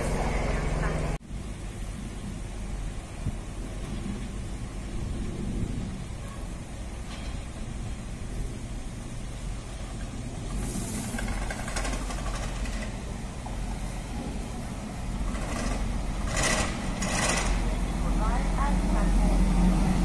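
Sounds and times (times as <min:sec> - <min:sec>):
train engine rumbling: 0:00.0 - 0:20.0
short hissing bursts: 0:10.4 - 0:12.1.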